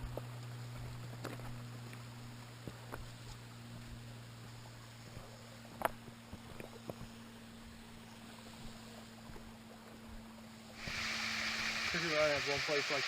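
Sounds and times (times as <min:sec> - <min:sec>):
waterfall rushing: 0:10.8 - 0:13.0.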